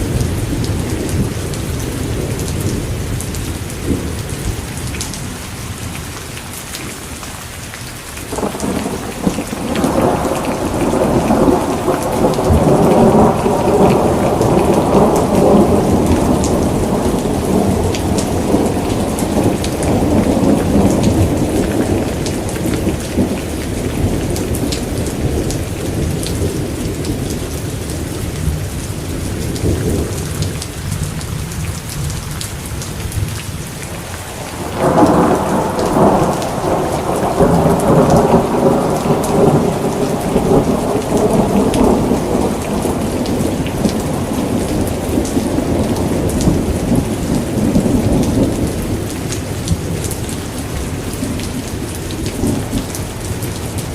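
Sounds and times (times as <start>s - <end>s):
steady rain: 0.0s - 53.9s
thunder rolling: 8.3s - 27.5s, 34.3s - 49.1s.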